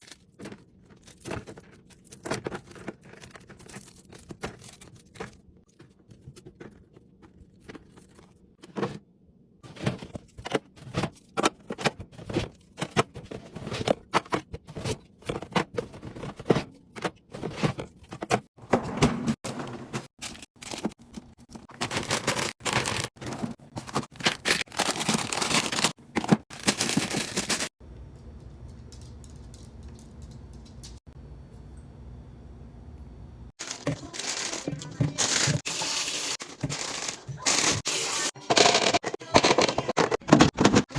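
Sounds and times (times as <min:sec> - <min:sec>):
food containers clattering: 0:33.6 - 0:40.9.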